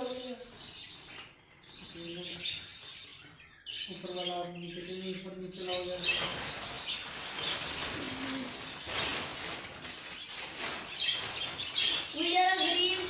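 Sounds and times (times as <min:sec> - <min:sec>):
budgerigars chirping: 0:00.0 - 0:13.0
steady rustling noise: 0:05.4 - 0:13.0.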